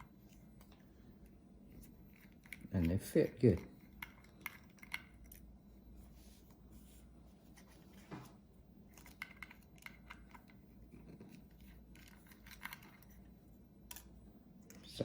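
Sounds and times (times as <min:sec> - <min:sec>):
screwdriver ticking and scraping: 0:01.8 - 0:05.5, 0:08.9 - 0:13.3.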